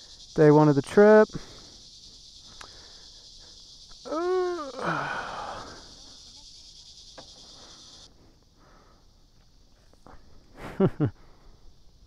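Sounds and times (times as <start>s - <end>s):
high buzz of insects: 0.0s - 12.0s
person's wordless vocal sound: 4.1s - 5.8s
breathy exhale: 4.6s - 5.9s.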